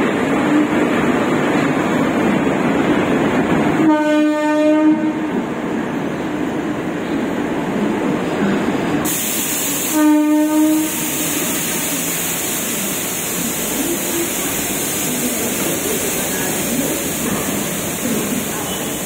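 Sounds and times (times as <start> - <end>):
train rolling past: 0.0 - 19.0
two-part train horn blast: 3.8 - 5.3, 9.8 - 11.3
high hiss: 9.0 - 19.0.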